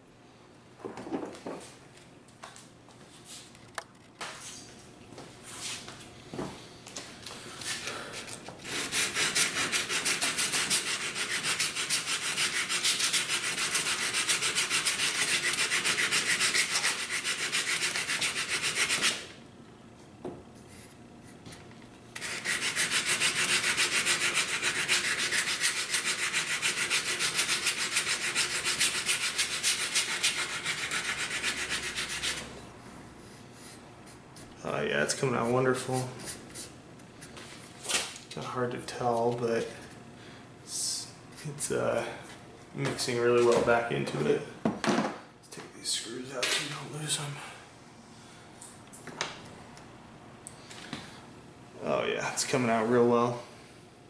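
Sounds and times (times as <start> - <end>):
sandpaper rubbing on wood: 8.6 - 19.3, 22.2 - 32.5.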